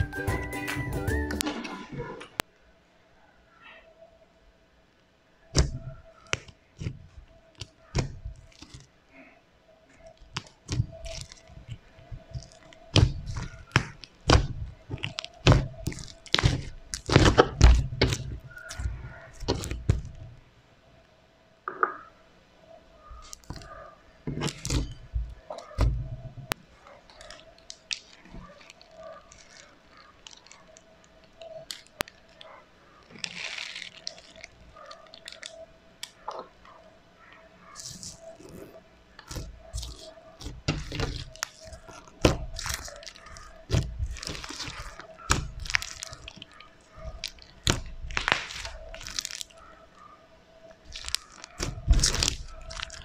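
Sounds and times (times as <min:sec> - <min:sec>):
foam bead slime crunching: 0:05.6 - 0:09.3, 0:09.9 - 0:20.3, 0:24.4 - 0:25.8, 0:27.0 - 0:36.2, 0:37.7 - 0:49.7, 0:50.7 - 0:53.0.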